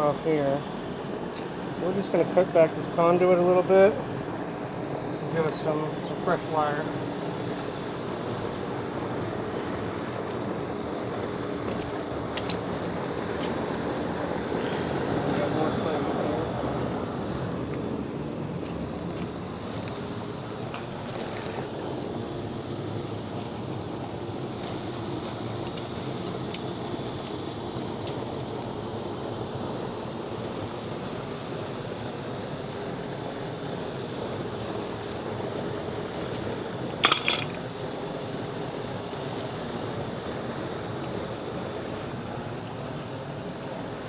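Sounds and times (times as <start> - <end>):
outdoor background hiss and rumble: 0.0 - 44.0
faint clicks of wiring work: 23.4 - 28.5
sharp metallic clink: 37.0 - 37.6.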